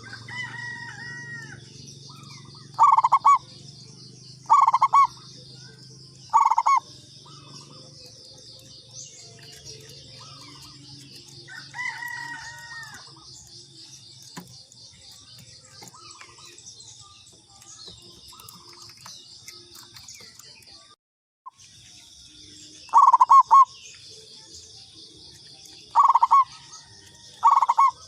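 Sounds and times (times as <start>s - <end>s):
dove cooing: 0.0s - 3.6s, 4.4s - 13.4s, 22.9s - 23.8s, 25.9s - 28.0s
high insect chirring: 0.0s - 20.6s
soft bird calls: 0.0s - 24.3s, 25.3s - 28.0s.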